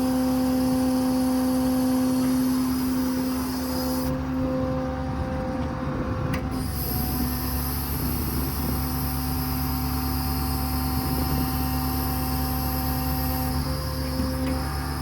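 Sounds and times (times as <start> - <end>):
diesel engine running: 0.0 - 15.0
thin high hydraulic whine: 6.6 - 15.0.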